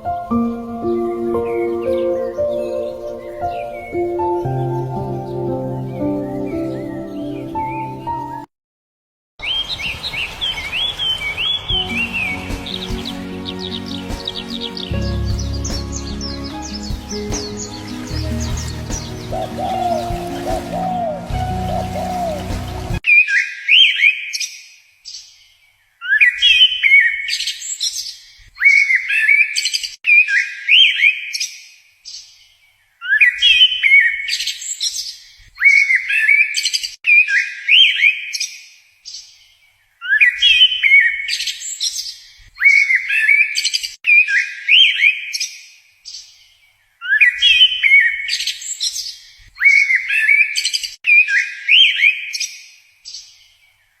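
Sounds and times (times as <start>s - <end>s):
songbird singing: 0.0s - 8.5s, 9.4s - 24.1s.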